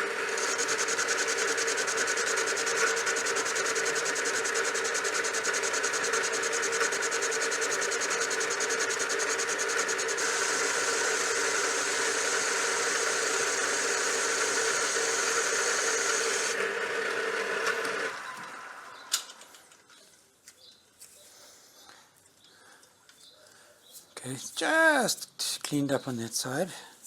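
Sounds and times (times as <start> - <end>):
power tool machining steel: 0.0 - 18.4.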